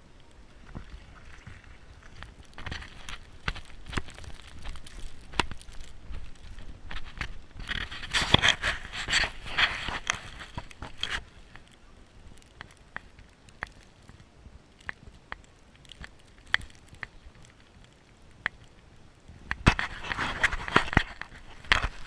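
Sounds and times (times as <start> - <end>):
footsteps crunching in snow: 2.0 - 11.6.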